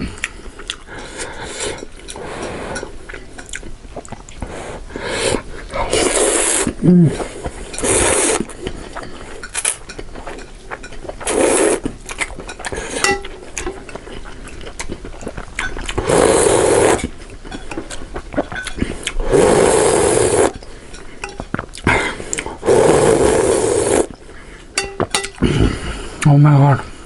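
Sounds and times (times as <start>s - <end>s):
loud noodle slurps: 5.1s - 6.8s, 7.8s - 8.5s, 11.2s - 11.8s, 16.0s - 17.1s, 19.2s - 20.6s, 22.6s - 24.1s
utensils clinking against a bowl: 7.6s - 11.4s, 12.1s - 14.7s, 17.0s - 19.0s, 20.5s - 21.6s, 24.8s - 25.4s.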